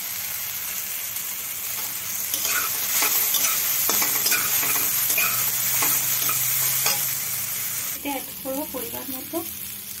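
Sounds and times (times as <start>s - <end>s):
vegetables sizzling in a pan: 0.0s - 10.0s
metal spatula scraping and stirring: 1.8s - 7.3s.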